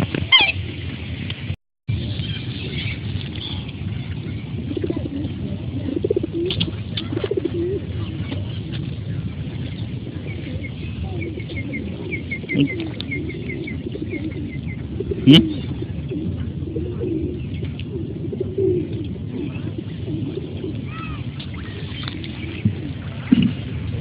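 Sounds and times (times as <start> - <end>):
low rumble: 0.0 - 24.0
bird cooing: 2.6 - 8.7, 9.5 - 24.0.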